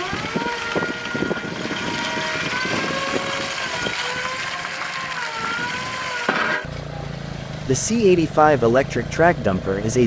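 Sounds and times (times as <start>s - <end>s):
machine motor whining: 0.0s - 6.7s.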